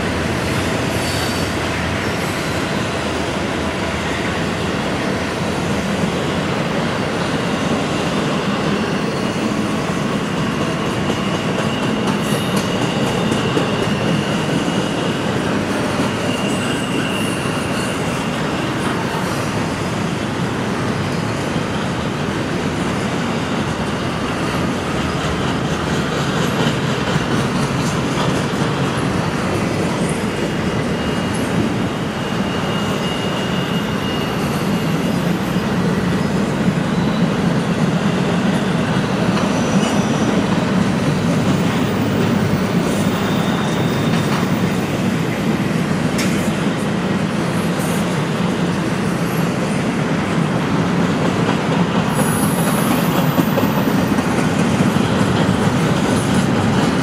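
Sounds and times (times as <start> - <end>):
freight train wheels rumbling: 0.0 - 57.0
high wheel squeals: 7.4 - 20.0, 23.2 - 46.6, 52.1 - 57.0.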